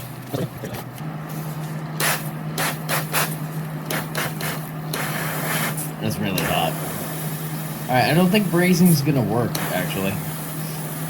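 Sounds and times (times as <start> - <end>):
steady low hum: 0.0 - 11.0
hiss: 1.3 - 11.0.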